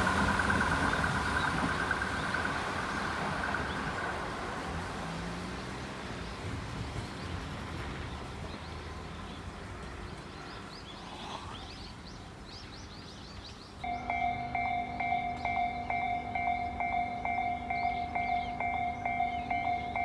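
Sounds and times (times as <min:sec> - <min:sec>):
electric train passing rumble: 0:00.0 - 0:20.0
bird chirping rising notes: 0:10.8 - 0:20.0.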